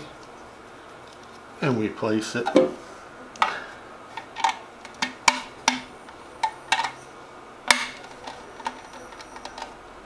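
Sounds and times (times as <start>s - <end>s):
plastic parts clicking: 7.7s - 9.8s.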